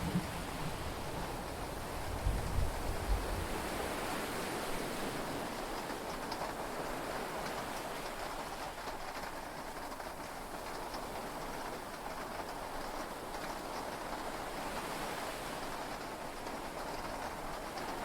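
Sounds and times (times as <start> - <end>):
low thunder rumble: 0.0 - 3.4
heavy rain and sea hiss: 0.0 - 18.0.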